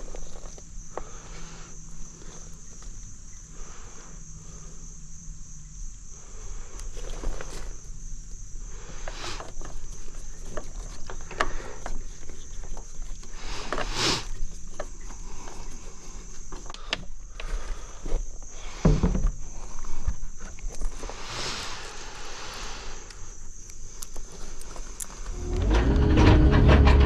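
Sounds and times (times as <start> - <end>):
high-pitched insect trilling: 19.5 - 25.5
knocks and scrapes: 25.2 - 27.0.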